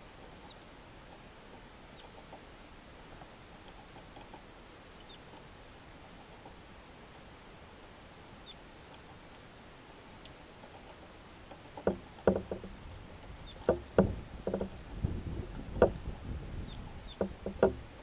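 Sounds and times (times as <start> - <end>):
birds pecking on wooden tray: 10.6 - 18.0.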